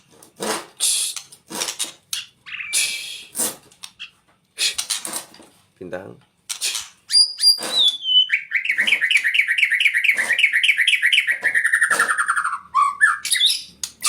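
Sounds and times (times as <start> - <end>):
bird singing whistles and chirps: 2.5 - 3.3, 7.1 - 13.7.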